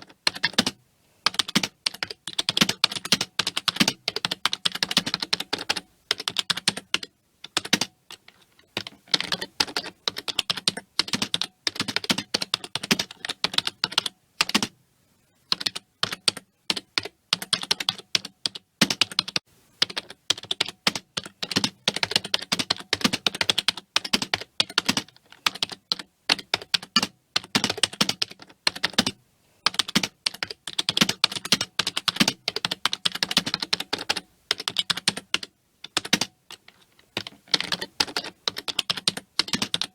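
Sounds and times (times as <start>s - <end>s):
keyboard typing clicks: 15.6s - 39.9s.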